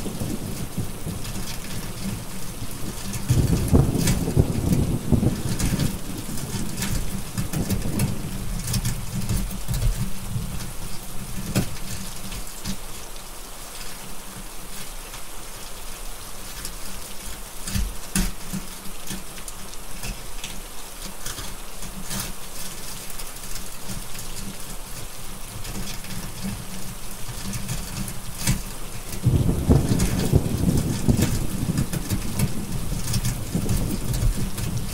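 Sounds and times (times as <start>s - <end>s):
thunder rumbling: 0.0s - 8.9s, 28.9s - 34.9s
heavy rain: 0.0s - 34.9s
wood fire crackling: 16.4s - 34.9s.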